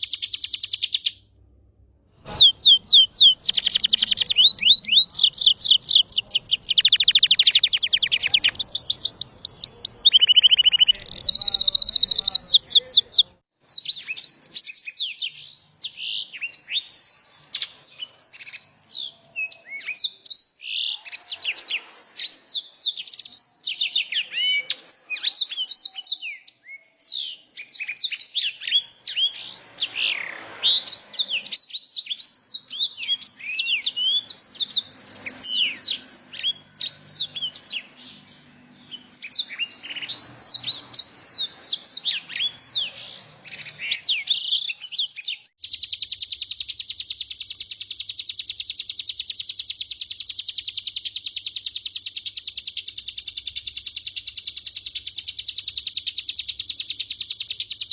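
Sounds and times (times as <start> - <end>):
songbirds twittering: 2.2 - 57.9.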